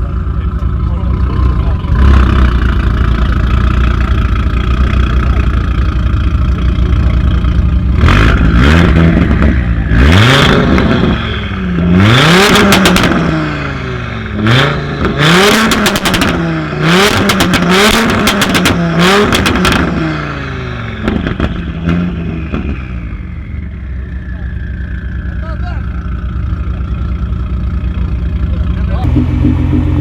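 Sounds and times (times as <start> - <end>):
car engine revving: 0.0 - 30.0
exhaust crackles and pops: 11.8 - 13.4, 15.0 - 20.0, 21.0 - 22.8.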